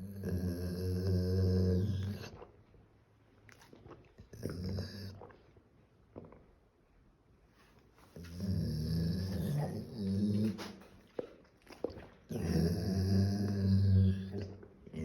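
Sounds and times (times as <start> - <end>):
dog growling: 0.0 - 2.3, 8.3 - 10.9, 12.3 - 15.0.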